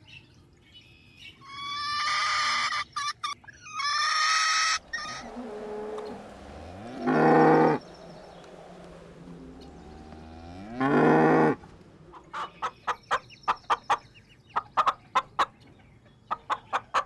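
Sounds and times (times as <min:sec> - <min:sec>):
high-pitched animal cries: 0:01.5 - 0:07.8
deeper animal call: 0:03.6 - 0:13.0.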